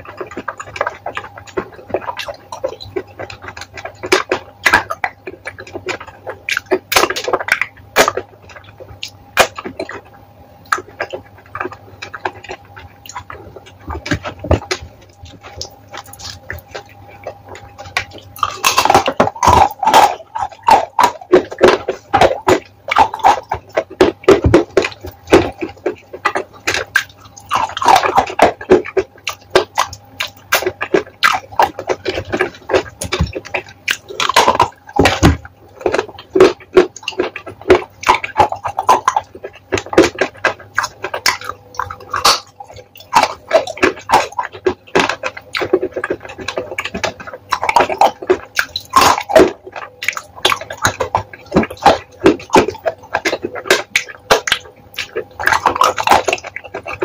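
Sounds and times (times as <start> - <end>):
chewing wet paste: 0.0 - 57.0.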